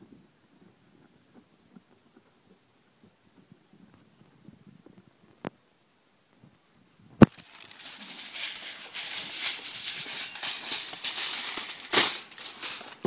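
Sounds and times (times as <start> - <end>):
aluminum foil crinkling: 7.2 - 13.0.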